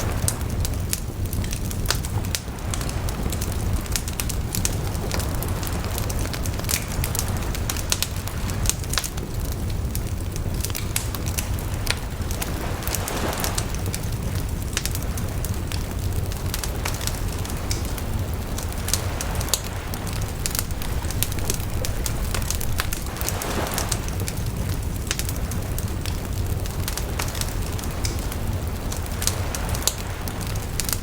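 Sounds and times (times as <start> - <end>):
bonfire crackling: 0.0 - 31.0
sharp snaps and pops: 0.0 - 31.0
low rumble: 14.1 - 26.9.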